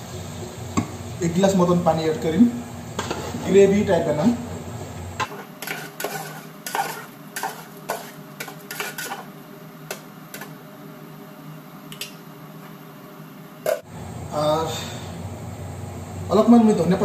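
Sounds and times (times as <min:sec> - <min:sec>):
wooden spatula scraping metal pot: 0:05.2 - 0:09.4.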